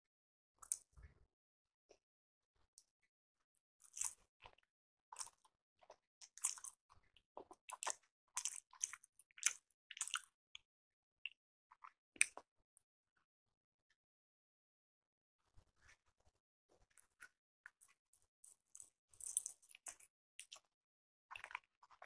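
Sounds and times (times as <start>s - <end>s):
person chewing soft food: 3.8s - 10.4s, 16.8s - 20.7s, 21.3s - 22.0s.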